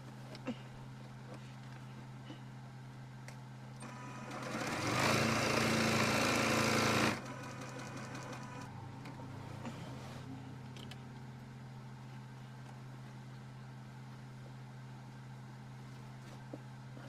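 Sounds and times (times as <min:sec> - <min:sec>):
electric sewing machine stitching: 0:03.8 - 0:08.7.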